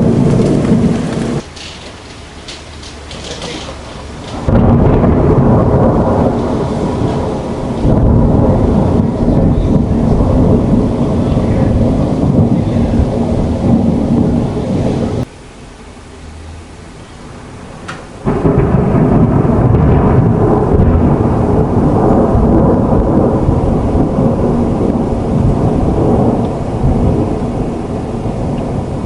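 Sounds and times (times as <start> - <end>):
rolling thunder: 0.0 - 15.3, 17.3 - 29.0
rain falling: 0.0 - 29.0.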